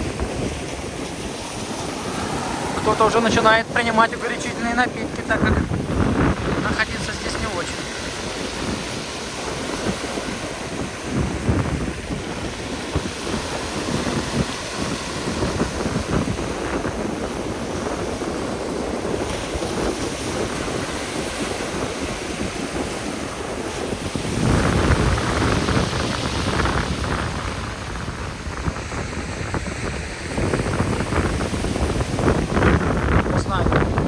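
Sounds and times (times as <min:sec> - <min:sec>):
sea waves breaking on beach: 0:00.0 - 0:34.0
wind buffeting microphone: 0:00.0 - 0:34.0.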